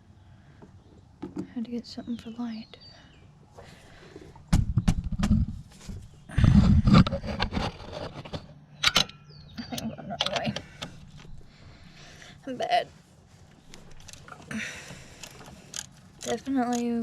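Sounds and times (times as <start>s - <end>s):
ratchet clanking: 15.2s - 17.0s
ratchet clicking: 15.2s - 17.0s.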